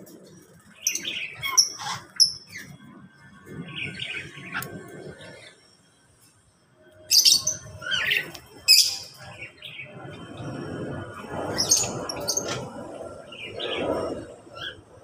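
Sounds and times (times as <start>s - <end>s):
low rough bird chatter: 0.0s - 5.8s, 7.1s - 15.0s
sharp high bird chirps: 7.0s - 9.2s.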